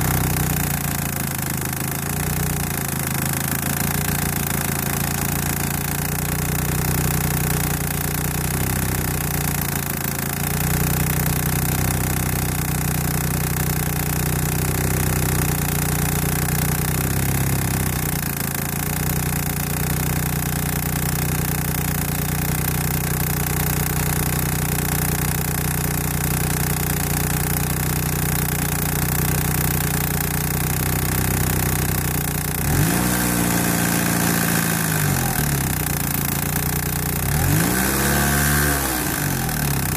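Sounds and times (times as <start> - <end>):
car engine idling: 0.0 - 39.9
engine ticking: 0.0 - 39.9
engine revving: 32.4 - 39.9.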